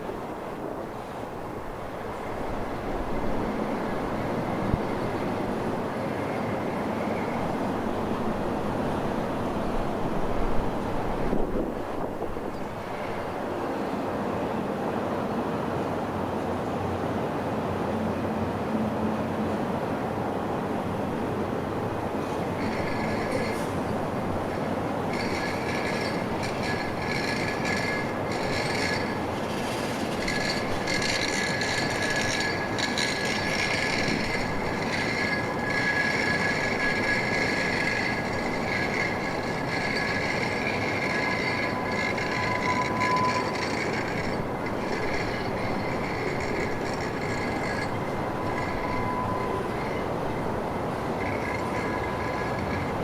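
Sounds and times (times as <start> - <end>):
freight train rumbling past: 0.0 - 53.0
train wheels squealing: 1.0 - 14.4, 21.8 - 53.0.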